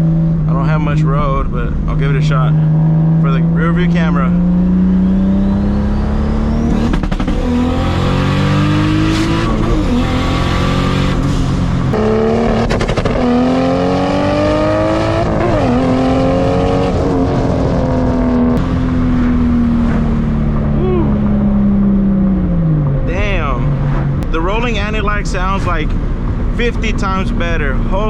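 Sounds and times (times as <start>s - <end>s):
car engine accelerating hard: 0.0s - 28.0s
exhaust popping and crackling: 6.5s - 14.3s, 14.9s - 28.0s.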